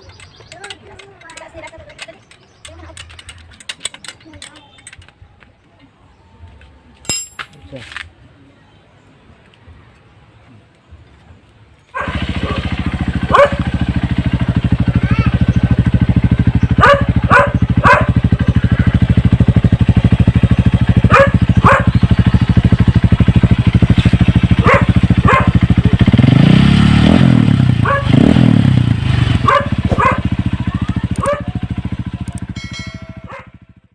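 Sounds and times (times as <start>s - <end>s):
motorcycle engine idling and revving: 0.0s - 5.7s, 11.2s - 33.9s
dog barking: 11.9s - 13.7s, 16.8s - 18.3s, 21.0s - 22.1s, 24.5s - 25.8s, 27.8s - 28.2s, 29.4s - 30.4s, 31.2s - 31.6s, 33.2s - 33.6s.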